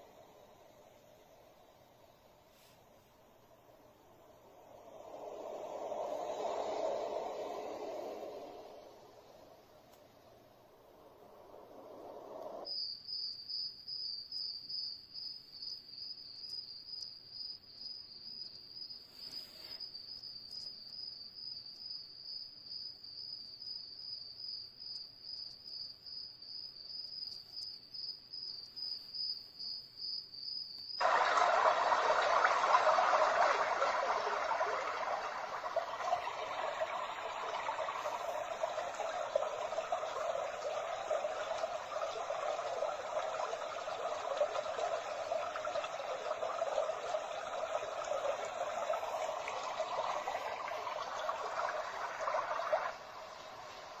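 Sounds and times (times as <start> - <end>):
steady rushing white noise: 0.0 - 12.7, 31.0 - 54.0
pulsing cricket chirring: 4.0 - 31.1, 31.8 - 54.0.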